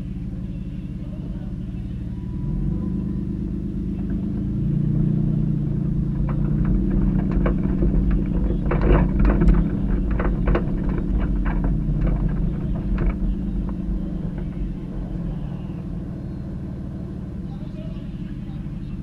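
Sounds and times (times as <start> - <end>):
car engine rumbling: 0.0 - 19.0
sharp knocks and clatters: 5.4 - 15.4.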